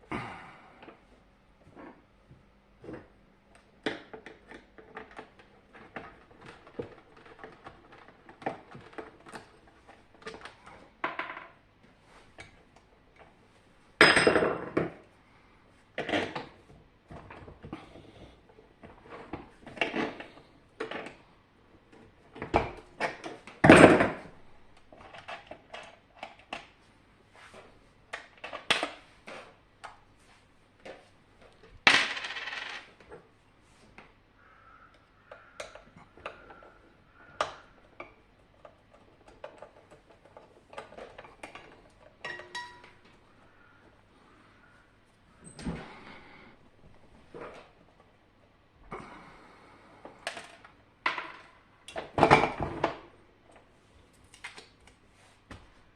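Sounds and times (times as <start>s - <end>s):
parts clattering: 35.4s - 44.0s.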